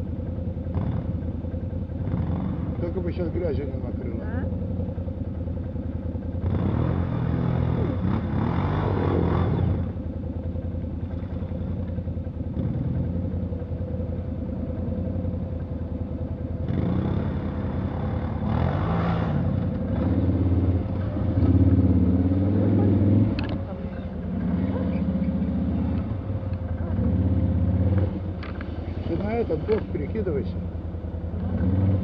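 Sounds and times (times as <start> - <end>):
off-road vehicle engine revving: 0.0 - 32.0.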